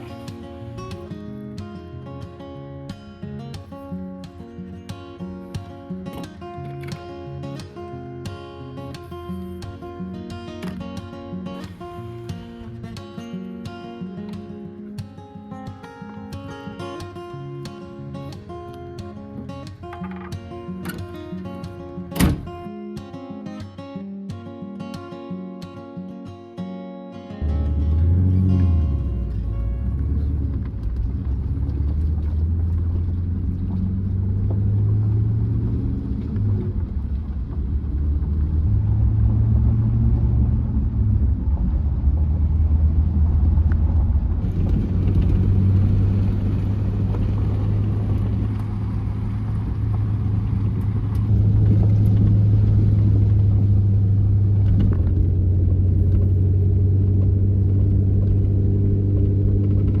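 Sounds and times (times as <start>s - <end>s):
truck engine and road rumble: 0.0s - 1.4s, 19.4s - 22.5s, 27.4s - 60.0s.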